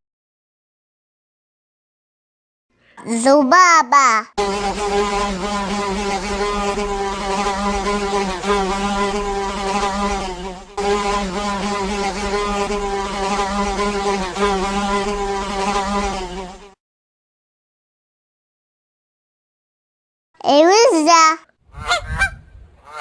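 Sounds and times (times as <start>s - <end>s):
housefly buzzing: 4.4s - 16.8s.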